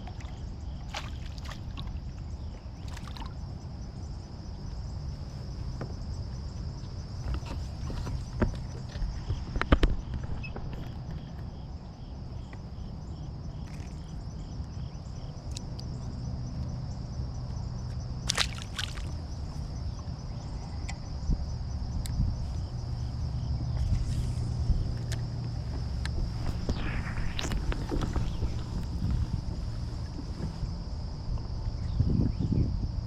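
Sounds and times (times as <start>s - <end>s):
wind on microphone: 19.2s - 33.0s.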